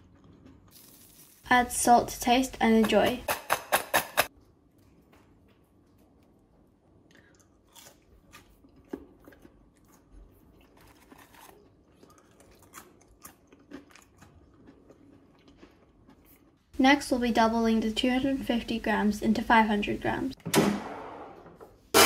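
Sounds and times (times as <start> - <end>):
chips being chewed: 7.1 - 16.6.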